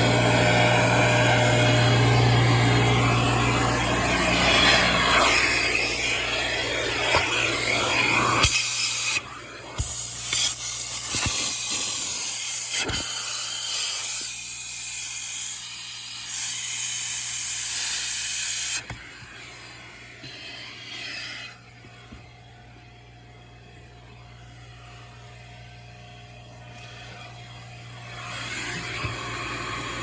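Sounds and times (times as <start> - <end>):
low motor hum: 0.0 - 8.5, 21.7 - 30.0
vacuum hose hissing: 0.0 - 22.1, 27.0 - 30.0.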